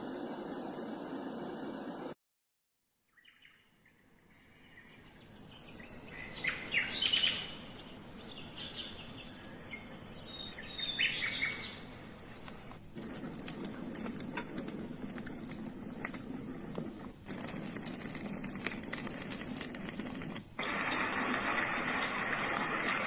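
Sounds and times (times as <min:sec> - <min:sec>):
white noise from speaker: 0:00.0 - 0:02.2, 0:06.0 - 0:23.0
birdsong chirps: 0:03.1 - 0:14.7.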